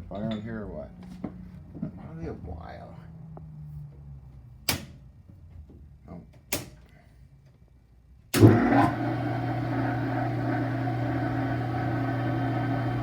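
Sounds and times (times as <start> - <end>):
electric motor humming: 8.4 - 13.0.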